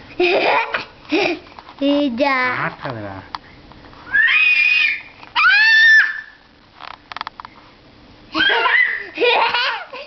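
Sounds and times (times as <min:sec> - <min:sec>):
toddler shrieking: 0:04.1 - 0:06.4, 0:08.4 - 0:09.8.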